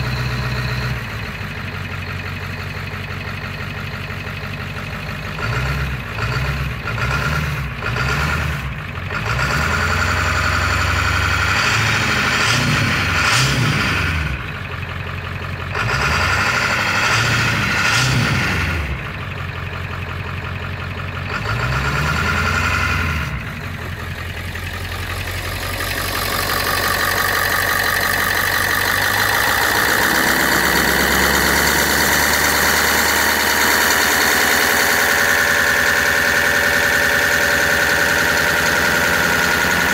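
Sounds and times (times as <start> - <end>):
diesel van engine running: 0.0 - 39.9.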